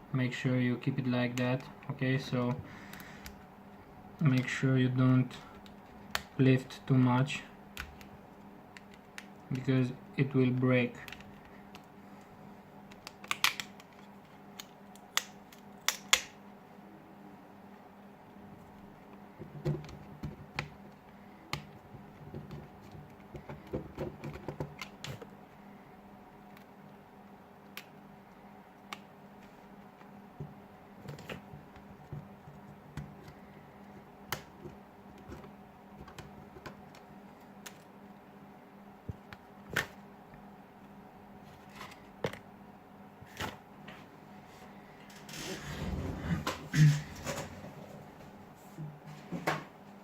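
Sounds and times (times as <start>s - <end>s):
faint steady hum: 0.0s - 50.0s
sharp snaps and ticks: 12.9s - 16.4s.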